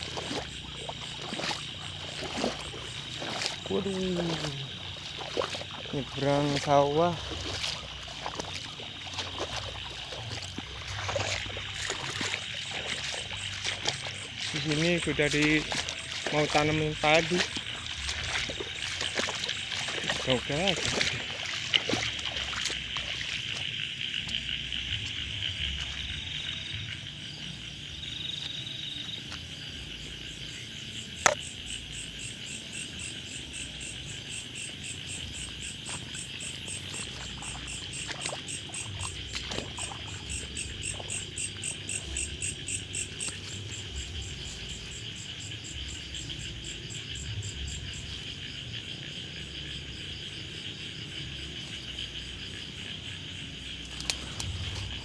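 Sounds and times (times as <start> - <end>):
insects and frogs trilling: 0.0 - 55.0.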